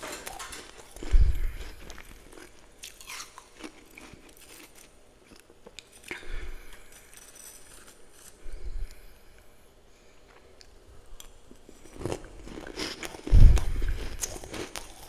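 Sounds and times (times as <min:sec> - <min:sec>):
chewing and crunching frost: 0:00.0 - 0:06.2, 0:11.5 - 0:15.0.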